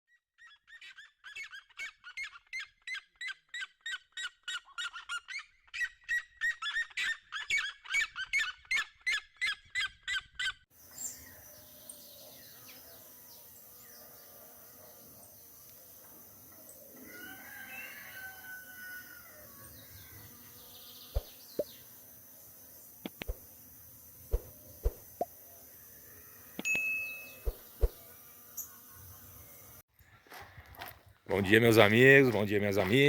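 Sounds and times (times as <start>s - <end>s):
faint outdoor ambience: 10.7s - 33.0s.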